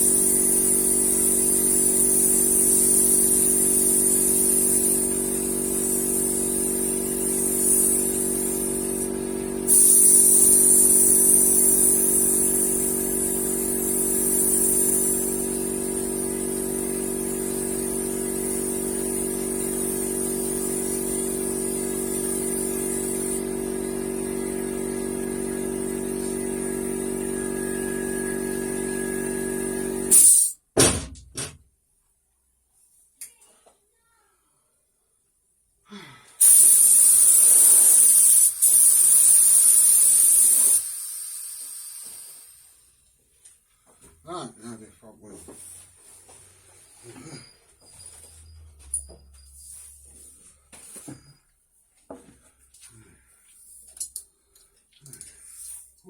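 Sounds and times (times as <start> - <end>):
paint spray hissing: 0.0 - 23.4, 36.4 - 42.6.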